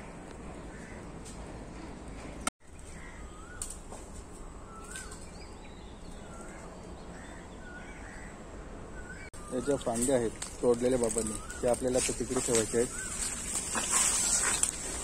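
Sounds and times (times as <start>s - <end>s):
birds whistling: 4.6s - 10.2s, 11.0s - 14.7s.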